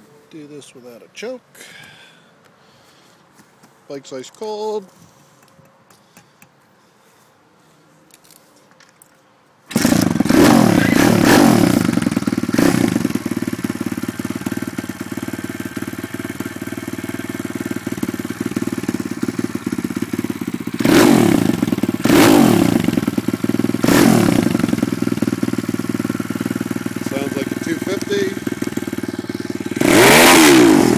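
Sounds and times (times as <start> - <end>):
motorbike engine revving and idling: 9.7 - 30.9.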